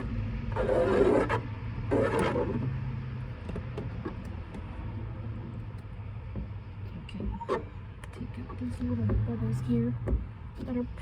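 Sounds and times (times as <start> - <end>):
hand tool scraping tint film: 0.0 - 2.8.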